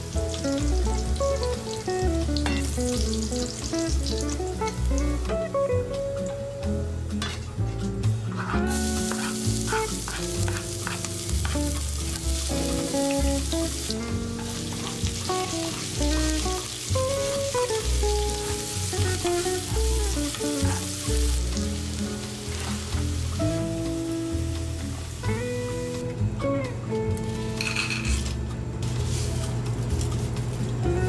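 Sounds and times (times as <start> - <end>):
food sizzling in hot oil: 0.0 - 7.5, 8.4 - 26.1
guitar music: 0.0 - 31.0.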